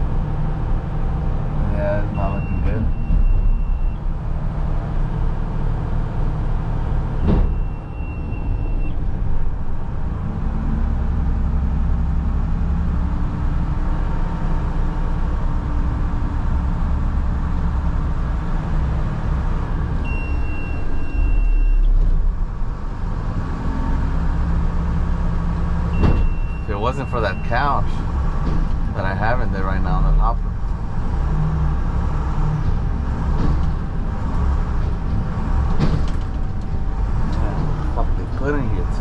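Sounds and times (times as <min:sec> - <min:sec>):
garbage truck engine running hard: 0:00.0 - 0:39.0
high steady beep: 0:20.1 - 0:21.9.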